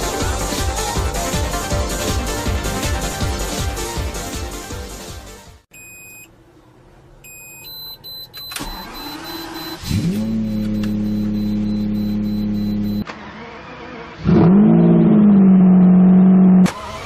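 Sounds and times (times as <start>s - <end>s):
short electronic beeps: 5.7s - 6.3s, 7.3s - 13.1s
starter motor engaging: 8.4s - 14.2s
car engine revving and idling: 8.8s - 17.0s.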